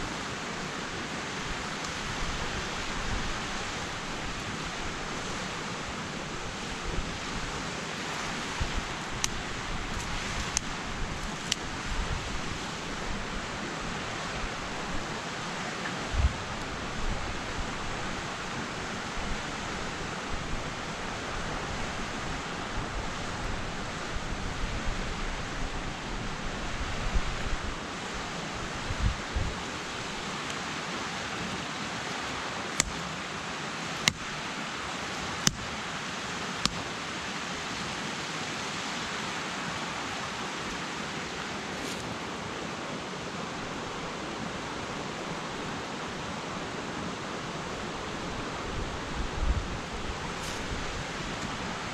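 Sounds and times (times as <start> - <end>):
water rushing: 0.0 - 24.4.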